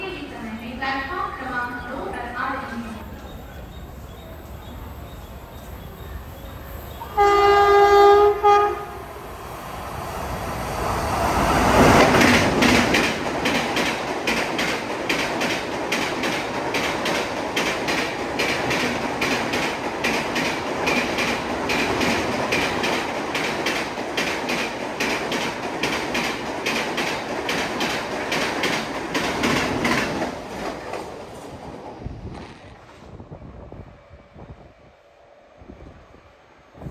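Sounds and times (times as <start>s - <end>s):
train horn blast: 7.0s - 9.2s
train wheels clattering over rail joints: 11.5s - 33.0s.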